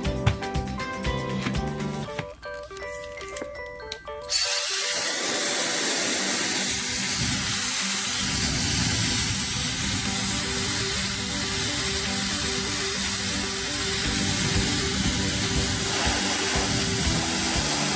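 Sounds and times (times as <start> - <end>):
background music: 0.0 - 17.9
hair dryer running: 4.3 - 17.9.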